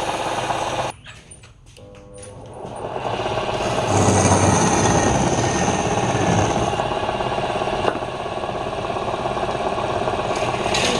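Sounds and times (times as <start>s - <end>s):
wood lathe rattling: 3.4s - 6.8s.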